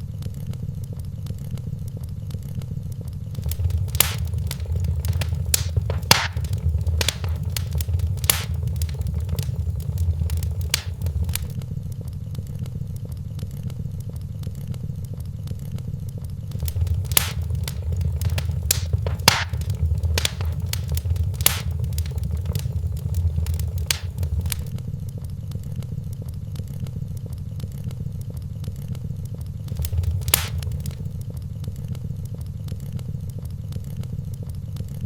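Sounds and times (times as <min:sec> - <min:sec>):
wood fire crackling and popping: 0:03.4 - 0:11.6, 0:16.5 - 0:24.7, 0:29.7 - 0:31.2.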